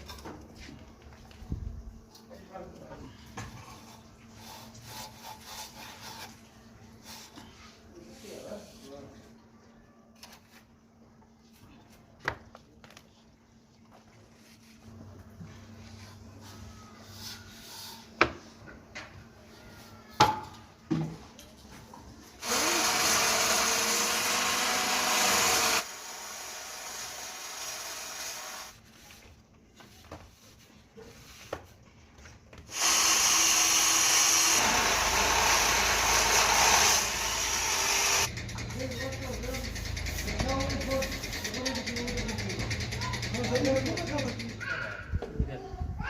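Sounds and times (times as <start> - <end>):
power tool running: 22.4 - 28.8, 32.7 - 38.3.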